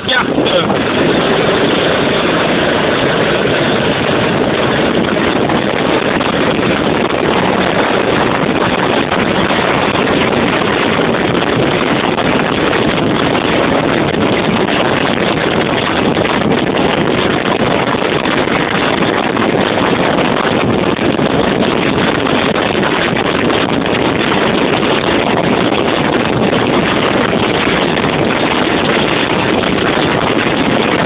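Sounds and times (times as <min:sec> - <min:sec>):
wind buffeting microphone: 0:00.0 - 0:31.0
kart engines running: 0:00.4 - 0:08.5.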